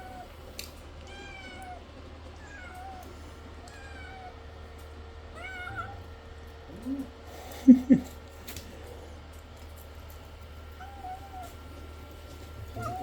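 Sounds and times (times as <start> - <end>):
cat meowing: 1.0 - 1.8, 2.4 - 4.4, 5.3 - 6.1, 10.8 - 11.9, 12.6 - 13.0.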